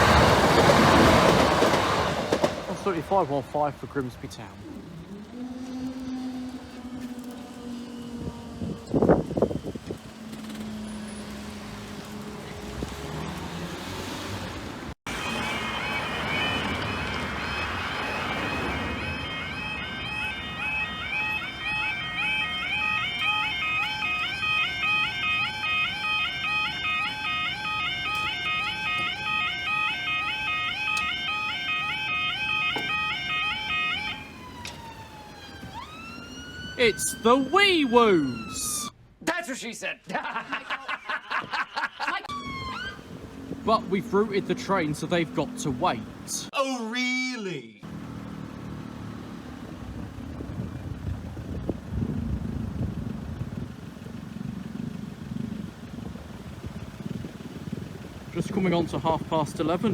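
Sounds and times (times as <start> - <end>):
vehicle engine rumbling: 0.0 - 39.2, 42.2 - 46.5, 47.8 - 59.9
level crossing alarm warble: 15.1 - 38.9, 42.3 - 46.5.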